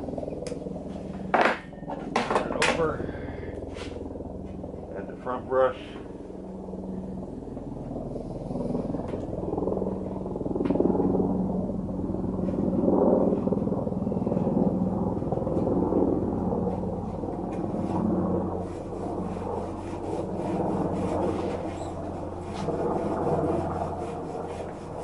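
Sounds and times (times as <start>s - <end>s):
low hum: 0.0s - 25.0s
brush strip rubbing and scraping: 18.6s - 25.0s.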